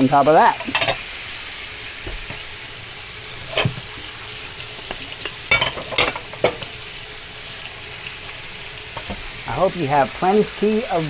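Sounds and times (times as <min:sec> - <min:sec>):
vegetables sizzling in hot oil: 0:00.0 - 0:11.0
utensil knocking and scraping pan: 0:04.8 - 0:06.7.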